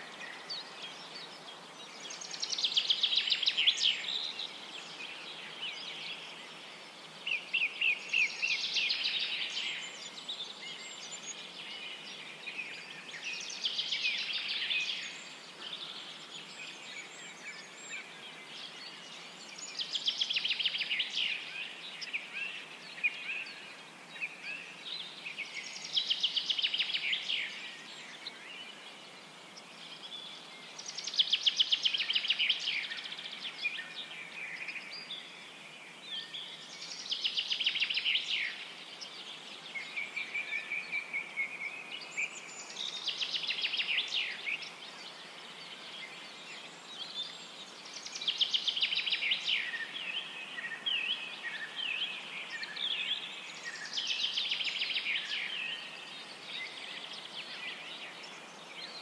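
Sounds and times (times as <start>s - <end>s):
steady background hiss: 0.0s - 59.0s.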